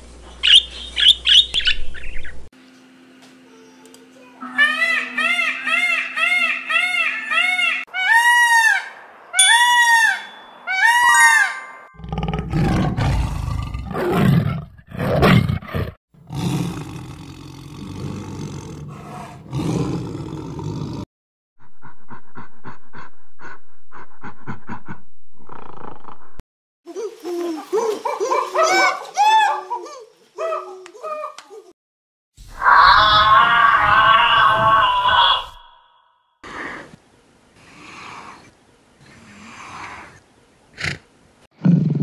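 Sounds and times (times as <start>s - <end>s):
chimpanzee calls: 4.4s - 11.7s, 26.9s - 31.7s
peacock wailing calls: 4.4s - 11.8s, 32.6s - 35.9s
tiger roaring and growling: 12.0s - 21.0s.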